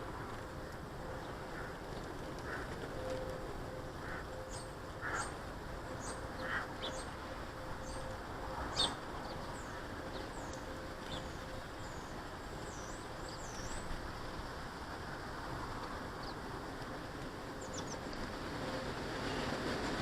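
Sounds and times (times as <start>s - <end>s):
faint hum: 0.0s - 20.0s
small birds chirping: 4.4s - 14.0s.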